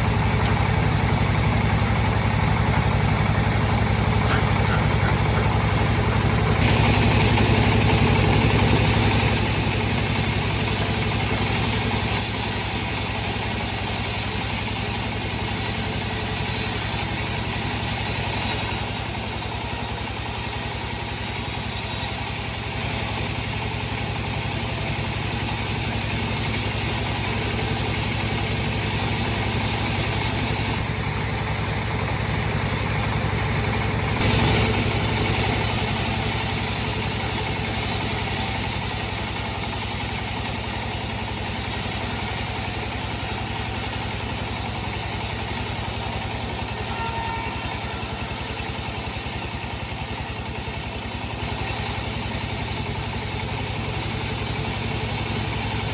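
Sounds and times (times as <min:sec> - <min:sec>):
bandsaw machine droning: 0:00.0 - 0:55.9
high hiss: 0:34.2 - 0:50.9.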